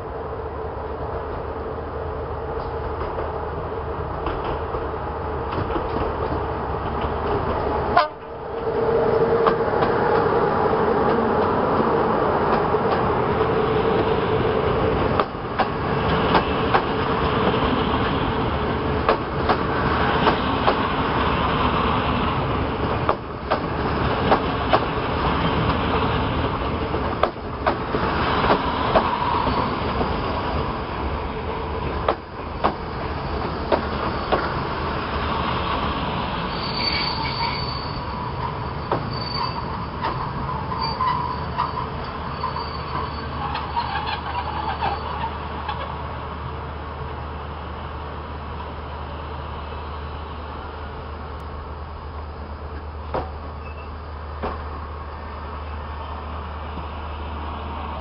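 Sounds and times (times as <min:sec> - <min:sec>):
passenger train rumbling past: 0:00.0 - 0:58.0
wheels clicking over rail joints: 0:22.8 - 0:30.2.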